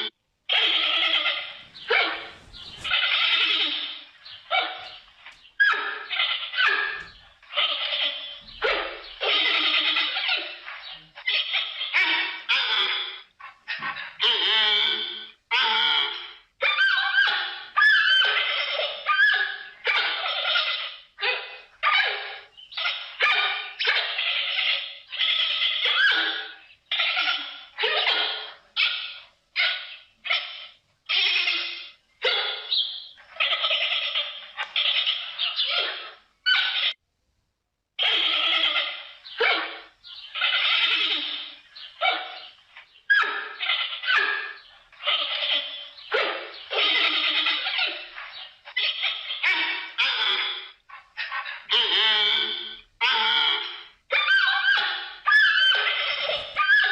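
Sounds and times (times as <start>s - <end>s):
panda harsh calls: 0.0s - 4.9s, 5.6s - 37.0s, 38.0s - 56.9s
panda calling harshly: 43.1s - 56.9s.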